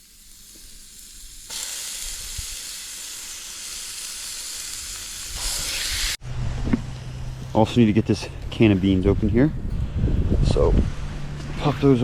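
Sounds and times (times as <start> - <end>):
meat sizzling in a pan: 0.0 - 6.2.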